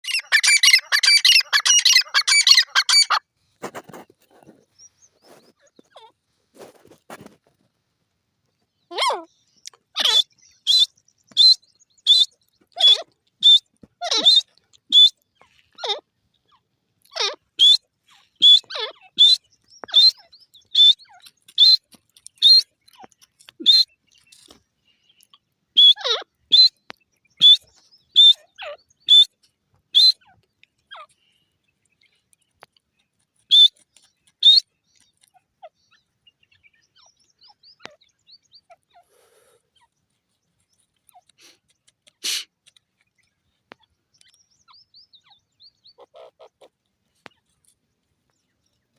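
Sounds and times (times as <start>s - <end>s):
bird calling shrill whistled notes: 0.0s - 3.2s, 10.0s - 15.2s, 17.6s - 21.8s, 25.8s - 30.2s, 33.5s - 33.8s.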